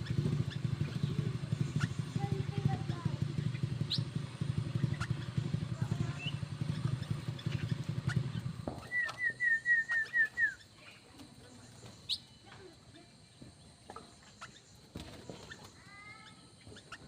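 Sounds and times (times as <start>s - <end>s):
faint bird chirps: 0.0s - 17.0s
low engine rumble: 0.0s - 17.0s
bird calling falling notes: 3.2s - 10.8s.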